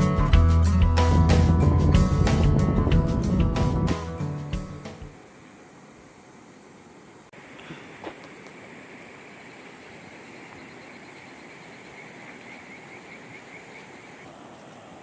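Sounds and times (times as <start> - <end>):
steady outdoor rushing noise: 0.0 - 6.4.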